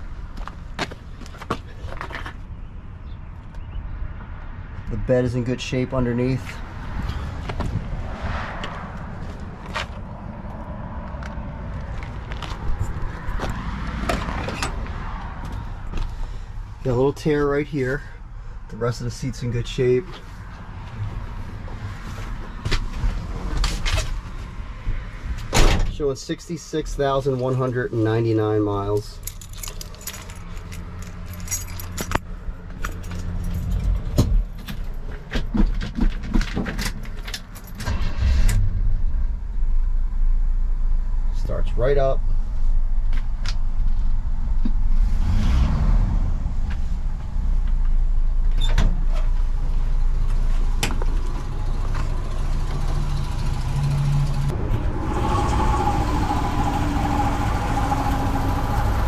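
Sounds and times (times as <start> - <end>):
keys jangling: 29.2 - 32.2
truck engine starting: 37.7 - 40.7, 51.2 - 59.0
steady low rumble: 37.8 - 51.7.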